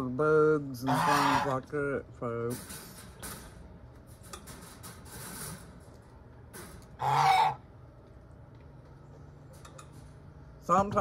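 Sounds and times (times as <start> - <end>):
poultry call: 0.8 - 1.6, 7.0 - 7.6.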